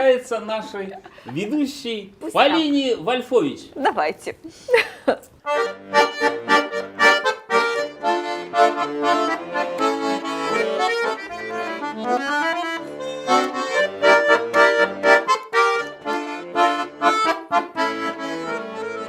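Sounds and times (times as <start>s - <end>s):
accordion playing: 2.2s - 3.0s, 5.4s - 19.0s.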